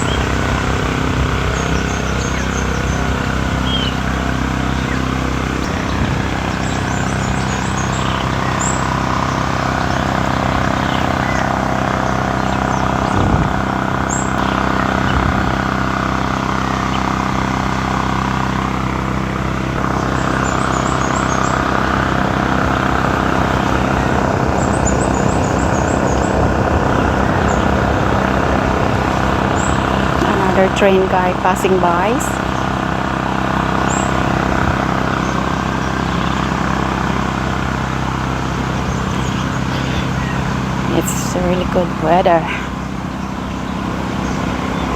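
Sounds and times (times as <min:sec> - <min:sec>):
steady mechanical drone: 0:00.0 - 0:44.9.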